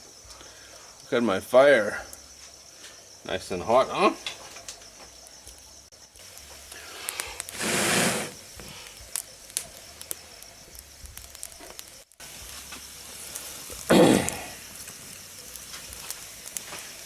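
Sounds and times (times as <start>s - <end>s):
low hiss of fire: 0.0s - 17.0s
wood fire crackling and popping: 0.1s - 17.0s
short loud rushes of noise: 7.5s - 8.4s.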